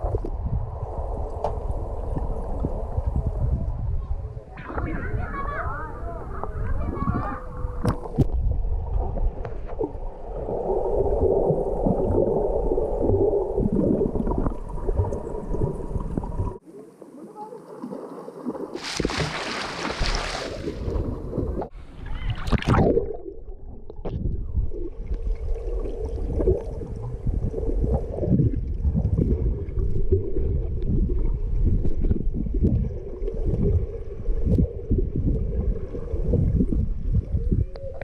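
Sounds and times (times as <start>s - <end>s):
muffled underwater rumble: 0.0s - 16.6s, 20.7s - 38.0s
water splashing: 9.0s - 38.0s.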